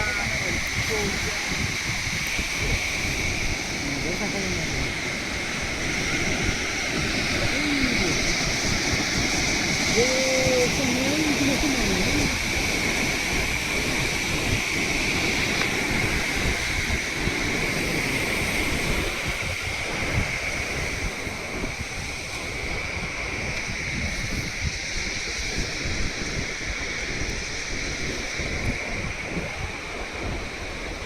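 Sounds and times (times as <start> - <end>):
high-pitched drone: 0.0 - 12.9
waterfall rushing: 0.0 - 24.3
wind buffeting microphone: 0.0 - 31.0.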